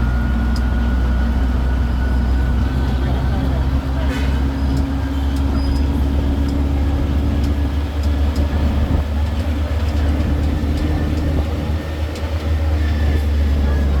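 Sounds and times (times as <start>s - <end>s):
road train engine drone: 0.0s - 14.0s.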